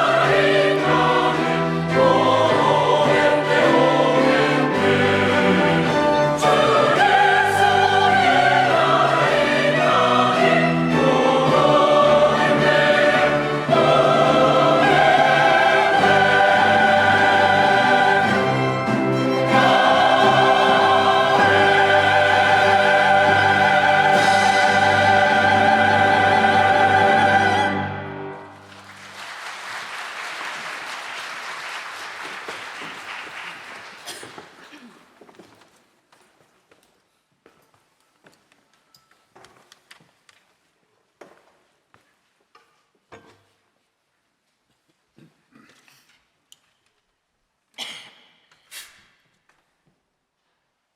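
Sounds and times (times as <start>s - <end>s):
choir singing with orchestra: 0.0s - 28.8s
applause: 28.5s - 34.7s.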